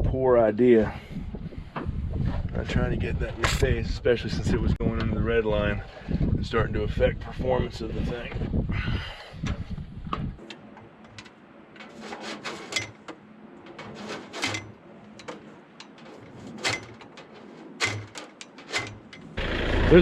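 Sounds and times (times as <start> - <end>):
hands handling parts and tools: 10.4 - 19.4.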